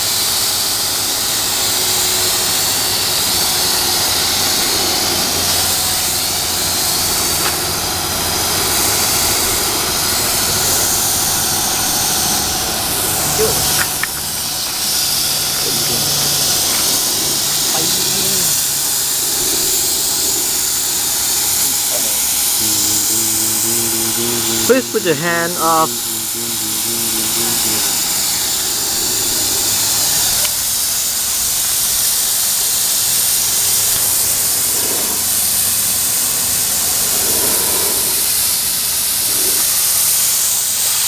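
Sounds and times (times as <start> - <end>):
spray gun air hiss: 0.1 - 35.2.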